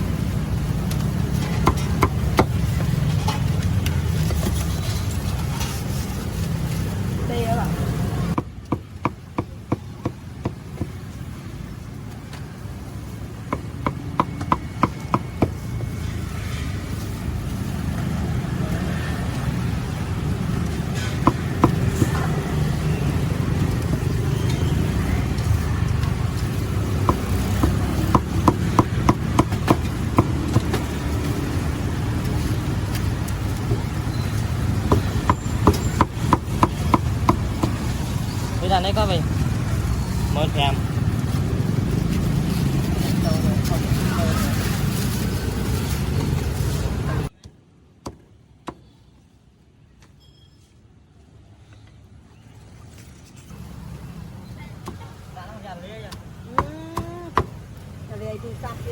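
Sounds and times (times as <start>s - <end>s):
low rumble of street traffic: 0.0s - 58.9s
chopping on a cutting board: 27.0s - 30.9s.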